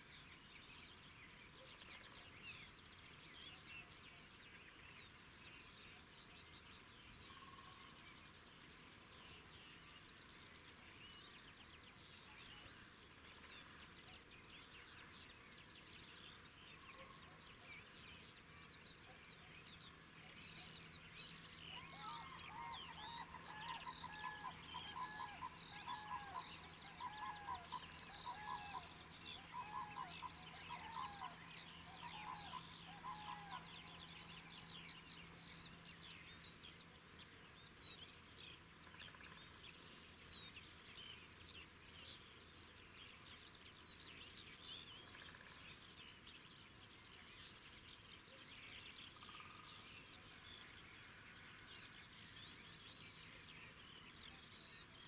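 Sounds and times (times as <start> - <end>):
birds chirping and trilling: 0.0 - 55.0
repeated lower bird calls: 18.2 - 37.4.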